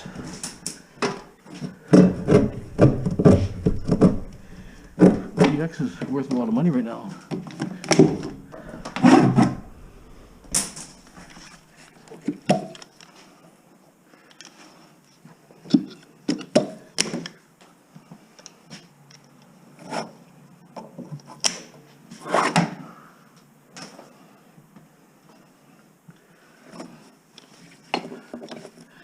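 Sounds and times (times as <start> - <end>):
armoured cable knocking and scraping: 0.0 - 6.6, 7.2 - 12.6.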